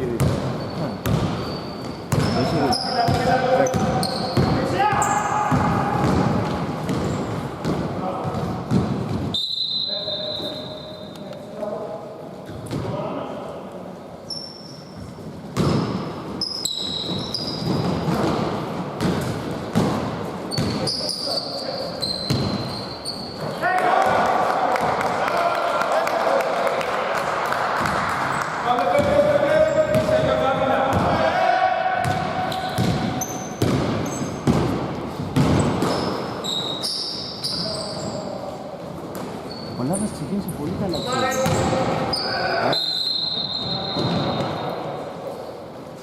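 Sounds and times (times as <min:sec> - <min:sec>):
shoes squeaking on court: 0:00.0 - 0:11.4, 0:14.2 - 0:23.6, 0:32.0 - 0:38.4, 0:39.1 - 0:45.6
basketball bouncing: 0:00.1 - 0:09.3, 0:15.6 - 0:16.0, 0:17.0 - 0:20.9, 0:22.2 - 0:22.7, 0:28.9 - 0:31.2, 0:32.0 - 0:36.2, 0:41.4 - 0:42.0.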